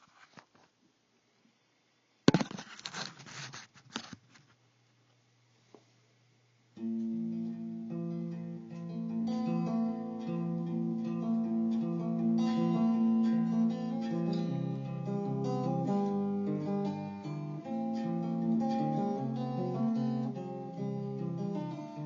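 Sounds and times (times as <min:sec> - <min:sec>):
electric guitar ringing notes: 0:06.8 - 0:22.0.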